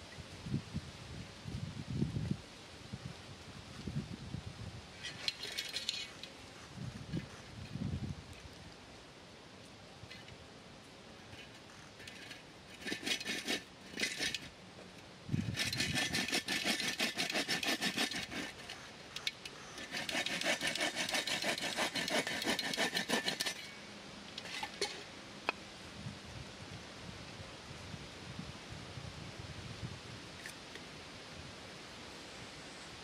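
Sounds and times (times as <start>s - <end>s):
wood being scraped with strokes: 11.2s - 14.6s, 15.4s - 23.8s.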